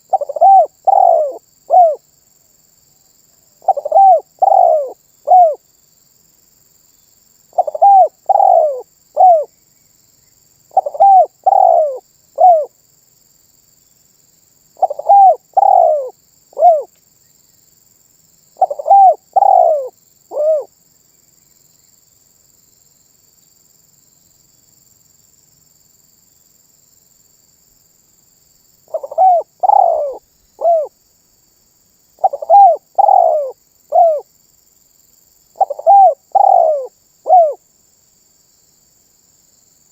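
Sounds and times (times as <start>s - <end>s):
dove cooing: 0.0s - 2.0s, 3.6s - 5.6s, 7.5s - 9.5s, 10.7s - 12.7s, 14.8s - 16.9s, 18.6s - 20.7s, 28.9s - 30.9s, 32.2s - 34.3s, 35.6s - 37.6s.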